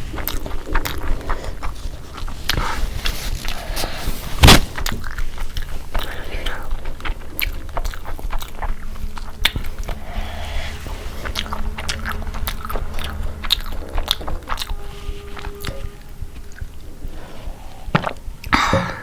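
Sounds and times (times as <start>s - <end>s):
chewing and biting food: 0.0s - 9.9s.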